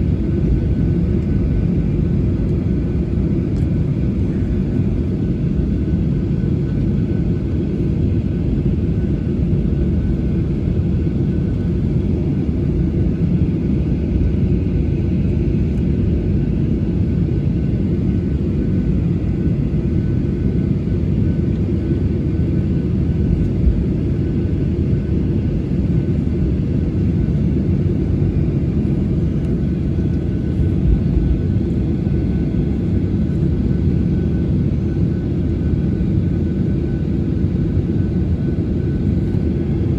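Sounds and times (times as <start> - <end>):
jet engine rumble in cabin: 0.0 - 39.9
jet engine whine: 0.0 - 39.9.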